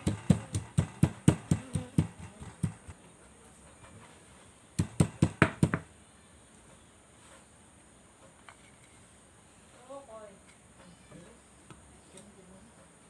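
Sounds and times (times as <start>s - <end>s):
knife chopping on wooden board: 0.0s - 2.9s.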